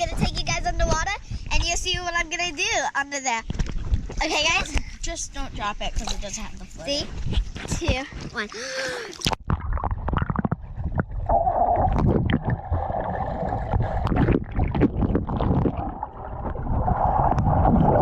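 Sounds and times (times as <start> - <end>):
water bubbling: 8.4 - 18.0
underwater water rumble: 9.4 - 18.0.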